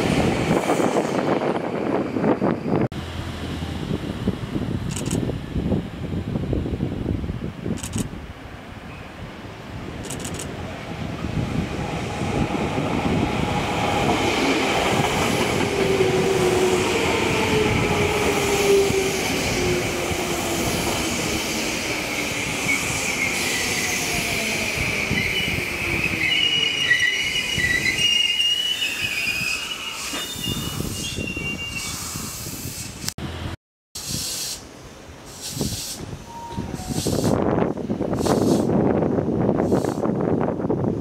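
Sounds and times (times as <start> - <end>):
train wheels rumbling: 9.6 - 33.0
wheel and brake squeal: 24.8 - 32.5.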